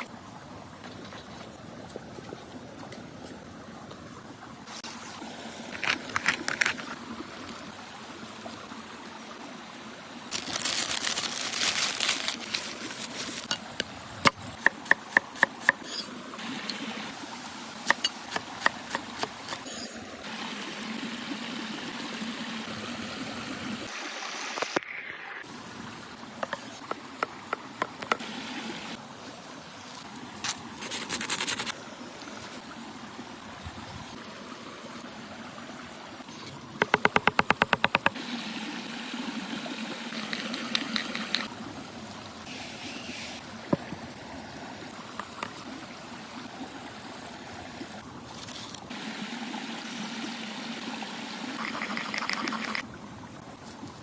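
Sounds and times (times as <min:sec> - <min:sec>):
campfire cooking hiss: 0:14.6 - 0:27.2, 0:38.1 - 0:43.7, 0:44.9 - 0:52.9.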